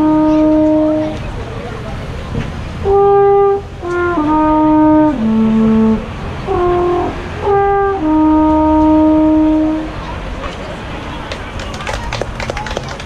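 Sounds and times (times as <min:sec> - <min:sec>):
wind instrument melody: 0:00.0 - 0:01.5, 0:02.7 - 0:11.2.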